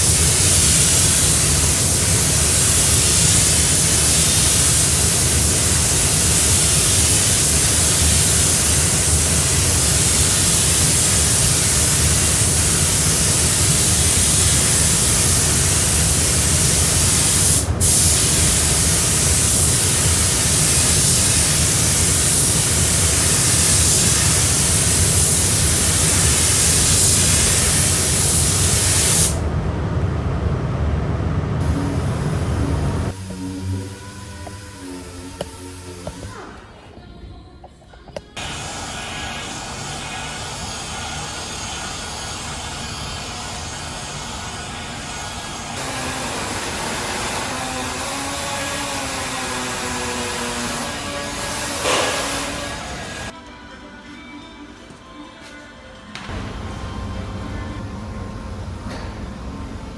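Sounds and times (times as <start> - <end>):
paint spray gun hissing: 0.0 - 29.4, 33.1 - 36.8, 38.3 - 53.4
low hum: 25.4 - 37.0, 56.3 - 59.9.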